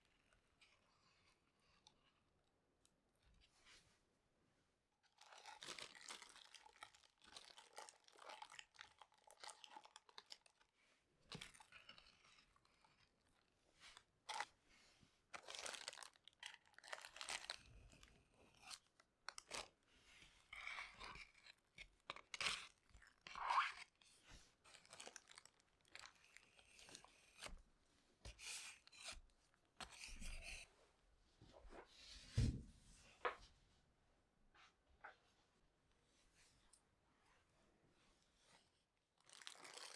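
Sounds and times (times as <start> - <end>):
material rustling and crinkling: 39.2 - 39.9.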